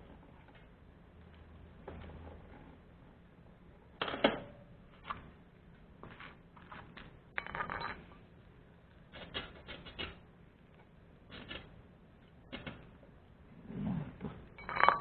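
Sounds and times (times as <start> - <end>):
hard objects clicking and clinking: 14.4 - 15.0.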